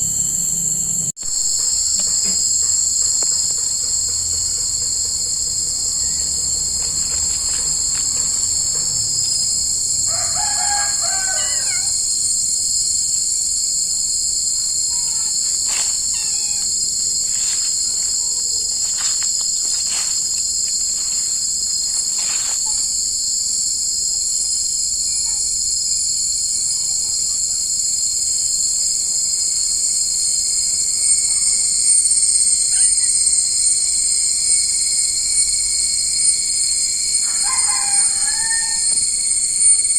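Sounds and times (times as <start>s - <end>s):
insects buzzing: 0.0s - 39.9s
rooster crowing: 4.0s - 12.4s, 35.4s - 39.9s.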